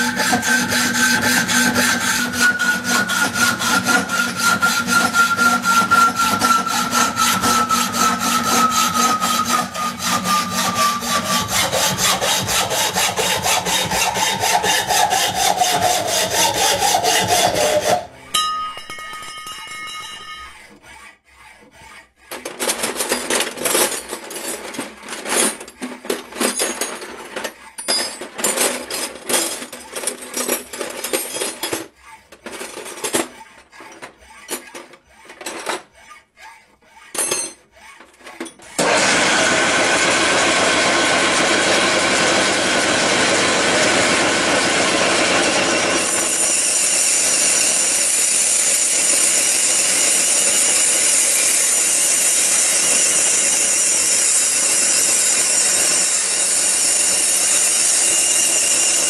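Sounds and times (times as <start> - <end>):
power tool cutting: 0.0 - 18.3, 38.7 - 59.0.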